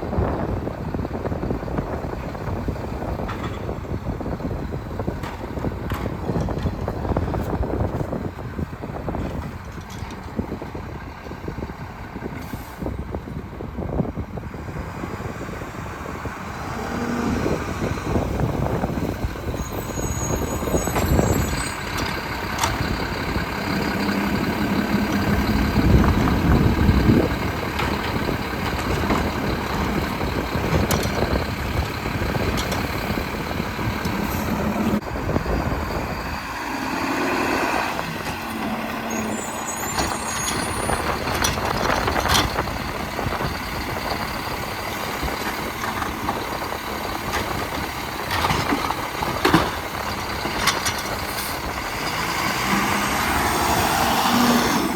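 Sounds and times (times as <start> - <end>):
garbage truck engine running: 0.0 - 54.9.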